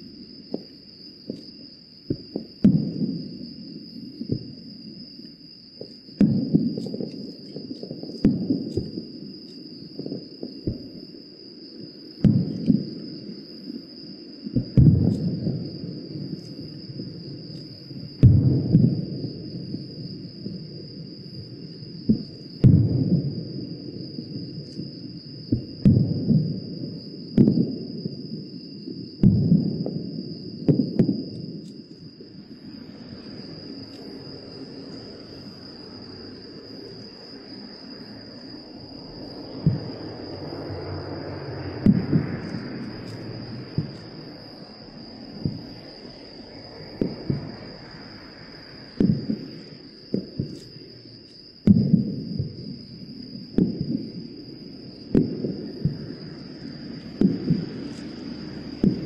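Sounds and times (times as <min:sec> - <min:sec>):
fireworks booming: 0:00.0 - 0:05.2, 0:05.8 - 0:11.2, 0:11.8 - 0:13.8, 0:14.4 - 0:36.8, 0:39.0 - 0:48.0, 0:48.8 - 0:50.9, 0:51.6 - 0:59.0
fireworks crackling: 0:05.8 - 0:09.1, 0:46.8 - 0:47.7, 0:57.0 - 0:59.0
steady high whine: 0:29.6 - 0:59.0.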